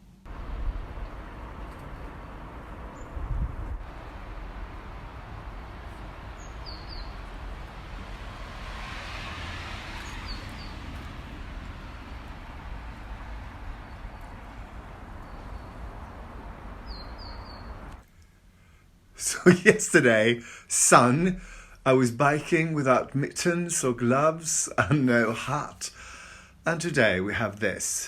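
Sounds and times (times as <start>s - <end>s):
wind in a snowstorm: 0.2s - 18.1s
high bird chirps: 6.3s - 7.3s, 10.0s - 11.0s, 15.2s - 16.2s, 16.8s - 18.0s.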